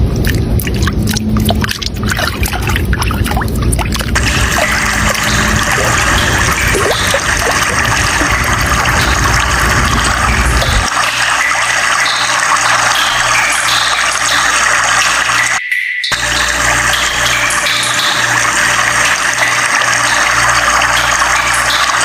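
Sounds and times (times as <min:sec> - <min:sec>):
low rumble: 0:00.0 - 0:10.9
water splashing and trickling: 0:00.0 - 0:22.0.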